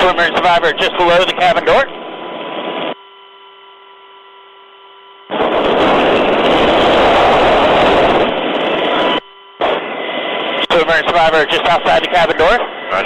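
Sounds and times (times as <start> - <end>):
intercom hiss: 0.0 - 2.0, 5.3 - 13.0
rotor and wind noise: 0.0 - 3.2, 3.9 - 13.0.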